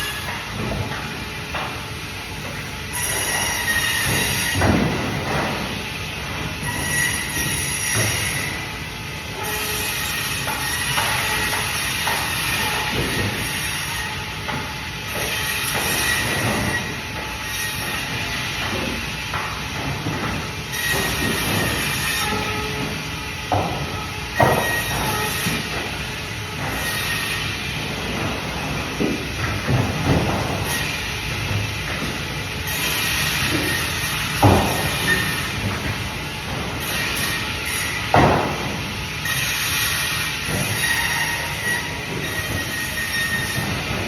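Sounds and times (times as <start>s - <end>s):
band saw cutting fish: 2.9s - 4.6s, 6.6s - 8.6s, 20.7s - 22.8s.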